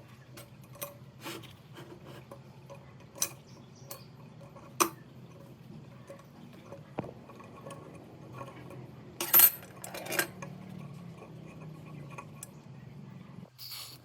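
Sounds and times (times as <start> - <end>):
small metal parts clinking: 7.3 - 12.5
metal parts clattering: 9.2 - 10.6.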